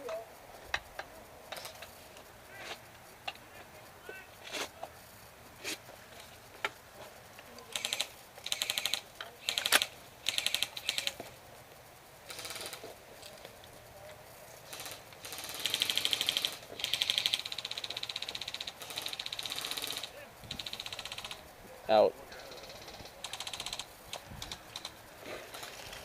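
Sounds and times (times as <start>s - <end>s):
airsoft guns firing full-auto: 7.7s - 11.3s, 12.2s - 12.9s, 14.6s - 21.5s, 22.5s - 26.0s.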